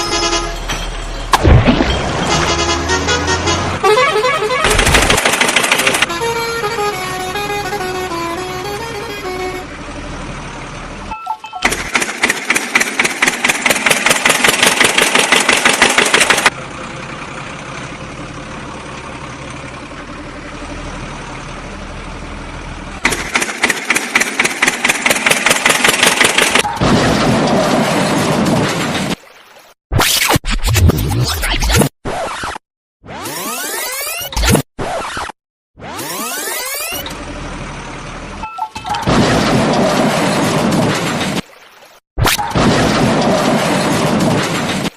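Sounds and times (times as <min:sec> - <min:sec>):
engine cranking and revving: 0:03.1 - 0:16.6, 0:23.0 - 0:28.5
engine idling: 0:04.4 - 0:26.6.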